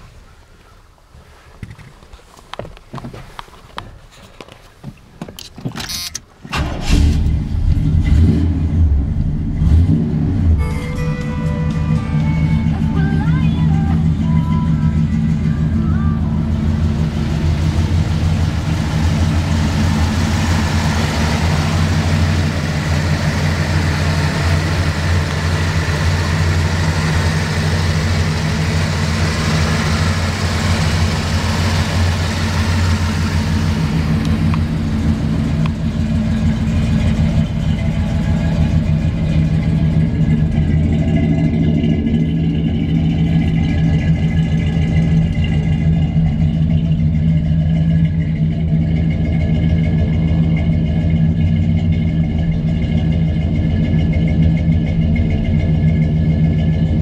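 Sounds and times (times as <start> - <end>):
pickup truck engine running: 6.3 - 57.0
rushing noise: 16.3 - 38.5.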